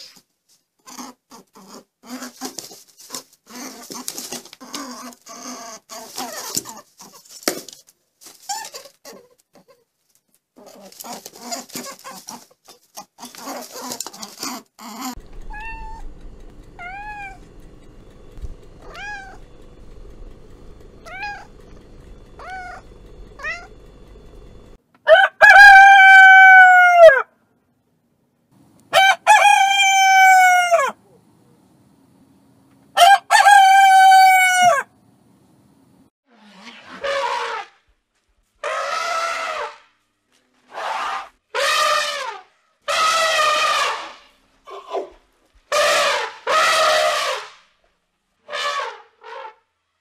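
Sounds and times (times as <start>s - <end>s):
rustling: 5.9s - 24.8s
rooster crowing: 15.2s - 23.8s, 24.5s - 27.3s, 29.0s - 31.0s, 33.0s - 34.9s
low steady hum: 15.2s - 24.8s
cat meowing: 15.4s - 16.1s, 16.8s - 17.5s, 18.8s - 19.4s, 22.4s - 22.8s, 23.4s - 23.7s.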